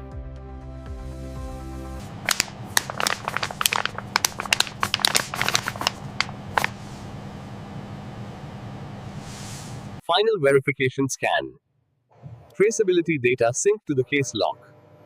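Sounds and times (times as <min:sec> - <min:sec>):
steady low hum: 0:01.8 - 0:10.0
sharp clicks and crackles: 0:02.3 - 0:06.8.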